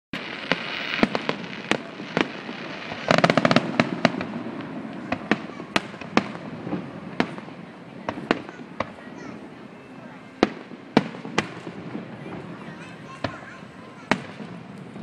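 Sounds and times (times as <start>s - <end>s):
fireworks shells bursting: 0.2s - 9.0s.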